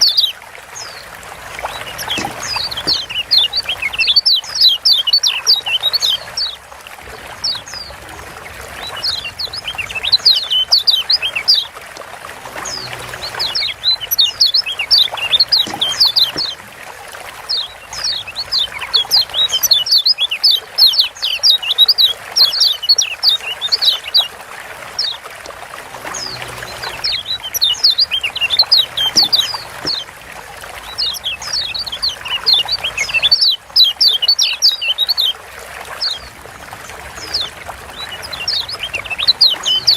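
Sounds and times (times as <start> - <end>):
bird chirping: 0.0 - 6.6, 8.8 - 11.7, 12.6 - 16.6, 17.5 - 24.3, 26.1 - 30.1, 30.8 - 35.4, 37.2 - 39.9
trickling water: 0.0 - 39.9.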